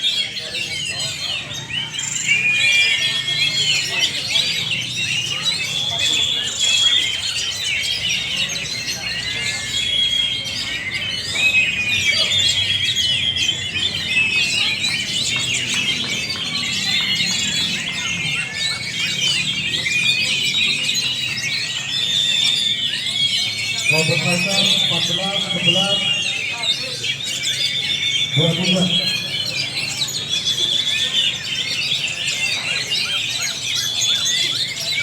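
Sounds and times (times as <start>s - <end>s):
many birds singing: 0.0s - 35.0s.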